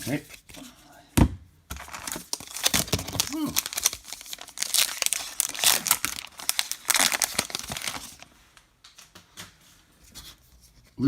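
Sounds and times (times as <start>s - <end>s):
wrapper tearing and crumpling: 1.8s - 8.3s.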